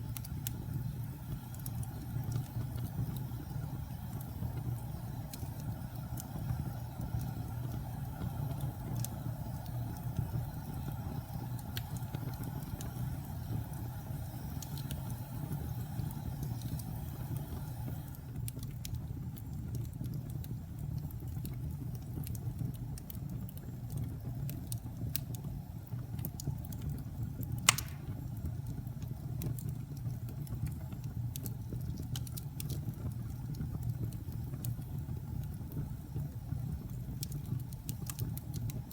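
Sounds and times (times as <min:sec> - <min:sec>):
wood fire rumbling: 0:00.0 - 0:38.9
loud fire pop: 0:27.6 - 0:28.3.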